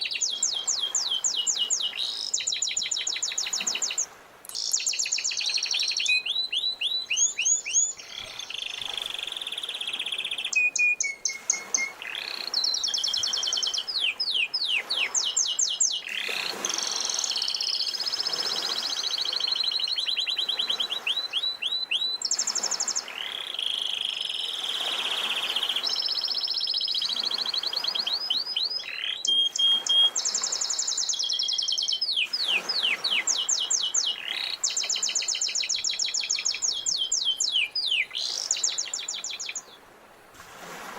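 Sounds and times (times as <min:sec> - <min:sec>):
canary singing trills: 0:00.0 - 0:24.8, 0:25.5 - 0:39.8.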